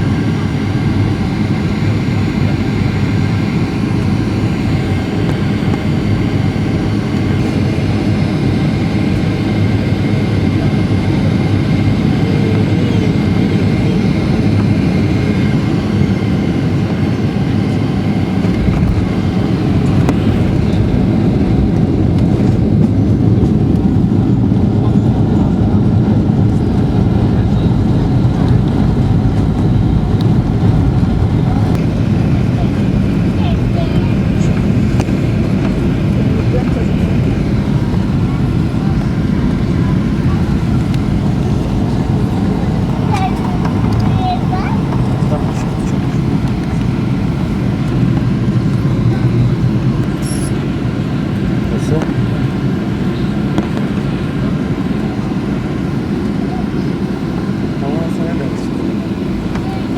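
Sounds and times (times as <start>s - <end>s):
jet engines rumbling: 0.0s - 59.9s
faint whine tones: 26.5s - 50.9s.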